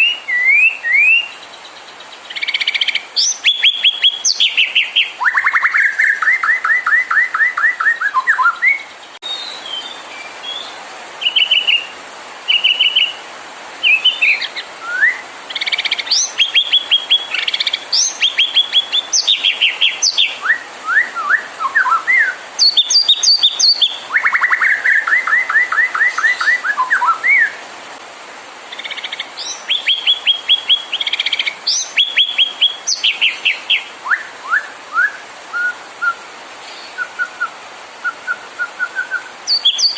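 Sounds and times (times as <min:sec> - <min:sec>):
bird singing fast trills: 0:00.0 - 0:10.7, 0:13.9 - 0:20.5, 0:21.2 - 0:27.5, 0:28.7 - 0:34.6, 0:39.5 - 0:39.9.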